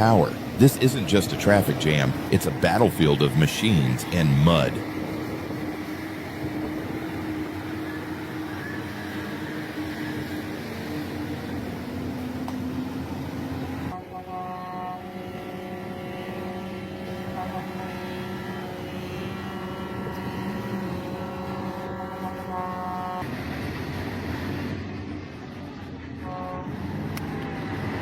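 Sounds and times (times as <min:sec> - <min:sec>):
heavy truck engines straining: 0:00.0 - 0:14.0.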